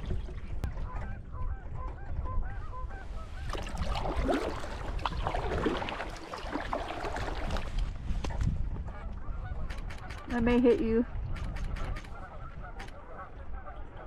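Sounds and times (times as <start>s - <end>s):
geese honking: 11.8s - 14.0s.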